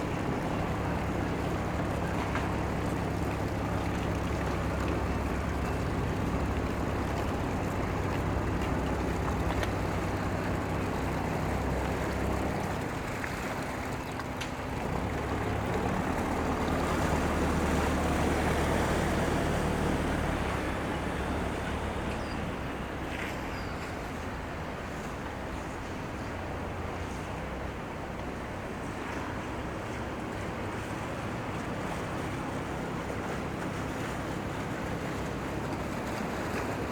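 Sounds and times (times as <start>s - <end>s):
water washing: 0.0s - 27.4s, 28.3s - 36.9s
boat engine droning: 0.0s - 36.9s.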